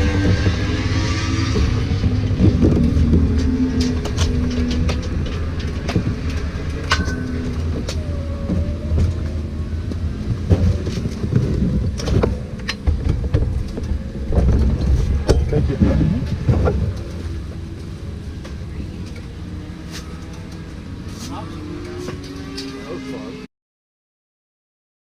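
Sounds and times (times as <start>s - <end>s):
sharp clicks and knocks: 1.4s - 21.2s.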